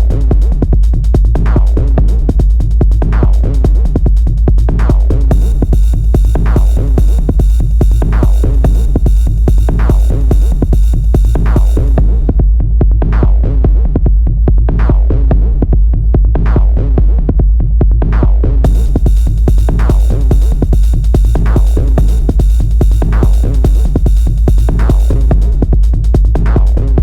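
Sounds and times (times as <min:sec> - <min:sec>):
drum machine pulse: 0:00.0 - 0:27.0.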